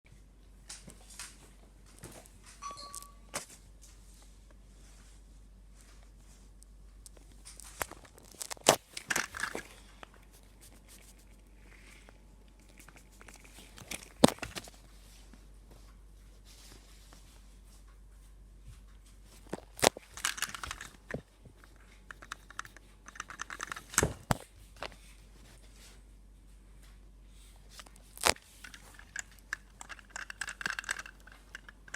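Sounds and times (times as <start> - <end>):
rattling and rustling: 7.2 - 9.9, 19.1 - 24.4, 28.5 - 31.9.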